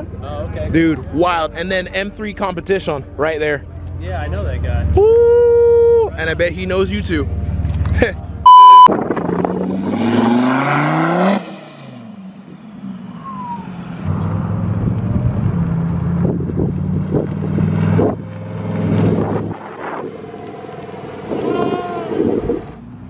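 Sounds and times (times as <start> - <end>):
car engine revving: 9.0 - 23.0.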